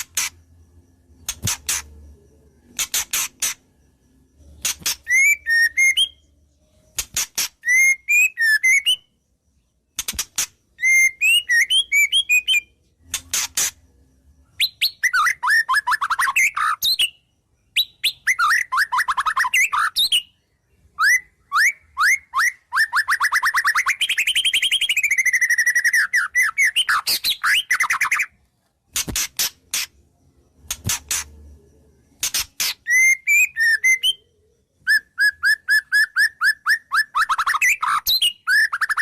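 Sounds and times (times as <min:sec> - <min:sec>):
bird singing varied song: 0:00.0 - 0:39.0.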